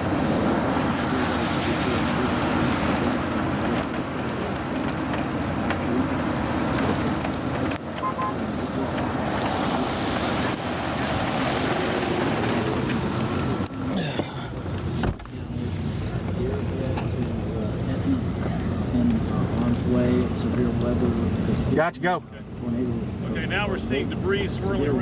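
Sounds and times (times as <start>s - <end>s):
wind noise: 0.0s - 13.7s
car road and engine noise: 0.0s - 25.0s.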